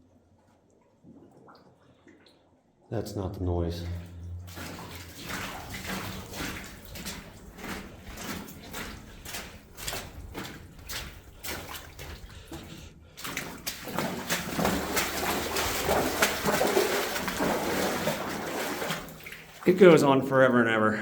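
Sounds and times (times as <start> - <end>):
footsteps splashing through water: 3.8 - 20.3.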